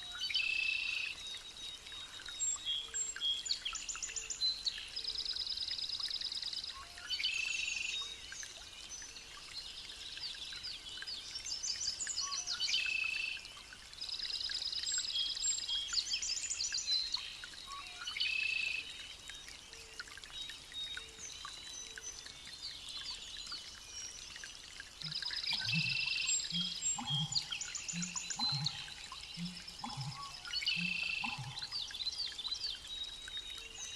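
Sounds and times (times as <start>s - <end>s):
birds chirping and whistling: 25.1s - 32.3s.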